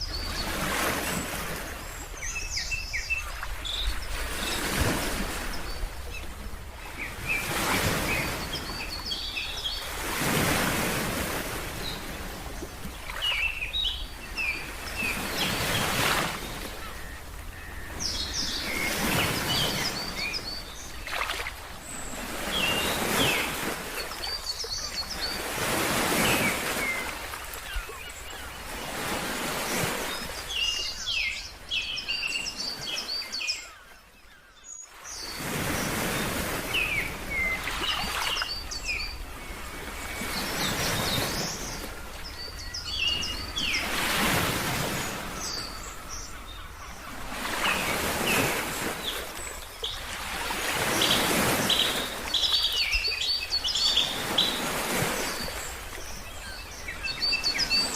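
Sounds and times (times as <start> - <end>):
ocean waves washing in: 0.0 - 31.7
small birds chirping: 11.7 - 28.8, 29.5 - 57.9.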